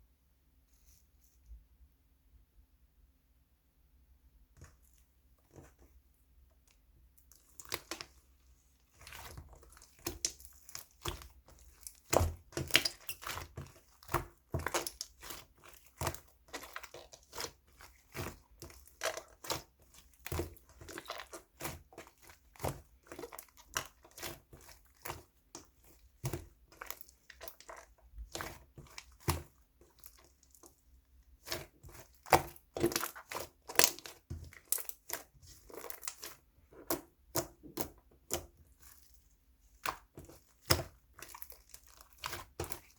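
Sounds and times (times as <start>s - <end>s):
clicks taps and crinkling: 31.5s - 42.9s.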